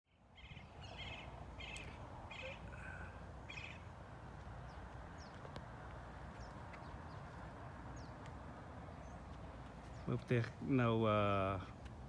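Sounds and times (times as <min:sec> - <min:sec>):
bird chirping: 0:00.1 - 0:04.0, 0:04.6 - 0:05.5, 0:06.3 - 0:08.2, 0:08.9 - 0:10.4.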